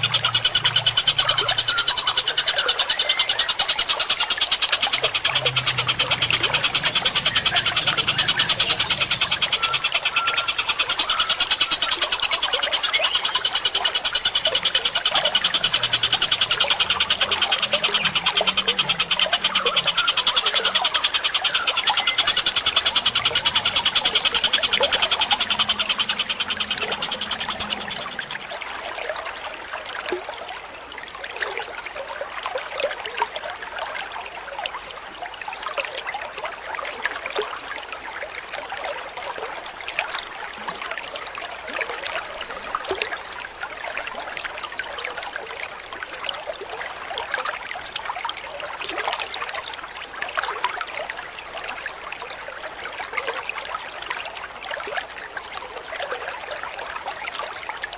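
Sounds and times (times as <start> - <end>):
buzzing pulsed bird call: 0.0 - 28.7
small water splashes: 0.0 - 57.9
water trickling: 0.0 - 57.9.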